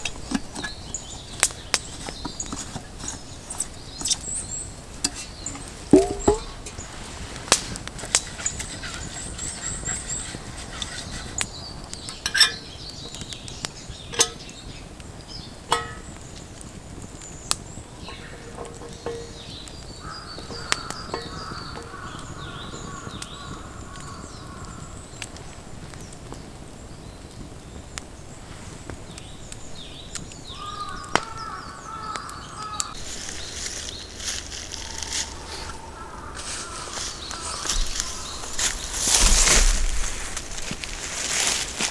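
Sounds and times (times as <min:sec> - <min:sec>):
birds calling: 0:00.0 - 0:28.4, 0:29.1 - 0:41.9
sharp pops or knocks: 0:05.5 - 0:06.8, 0:17.5 - 0:23.4.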